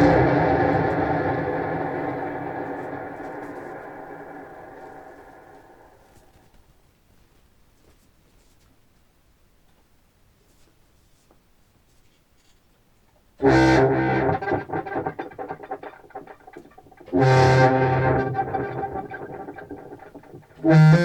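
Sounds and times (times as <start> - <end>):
clarinet notes with stuttering delay: 0.0 - 5.8, 13.4 - 21.0.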